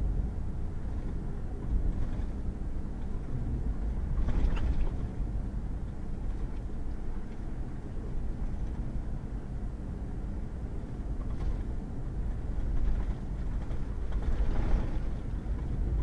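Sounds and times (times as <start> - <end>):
truck driving on wet gravel: 11.2 - 16.0.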